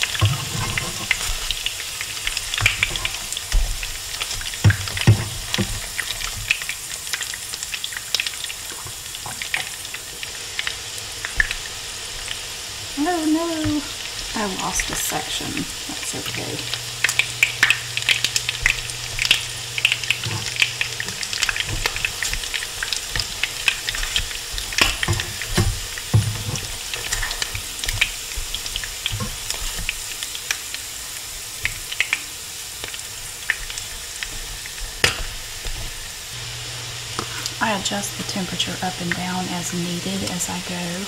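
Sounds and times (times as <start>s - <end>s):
tongs and spatula scraping pan: 0.0s - 3.4s, 17.1s - 30.0s
patties sizzling in hot oil: 0.0s - 41.0s.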